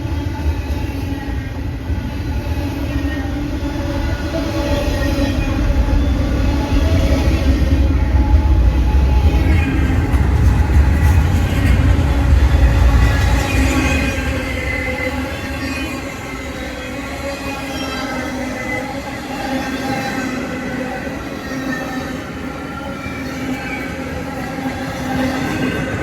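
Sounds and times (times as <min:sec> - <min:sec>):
steel wheels rumbling on rails: 0:00.0 - 0:26.0.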